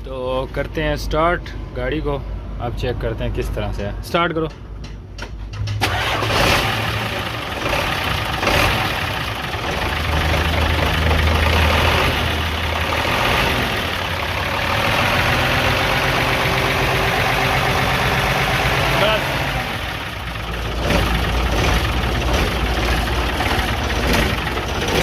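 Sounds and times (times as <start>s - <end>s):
diesel truck engine idling: 5.8s - 25.0s.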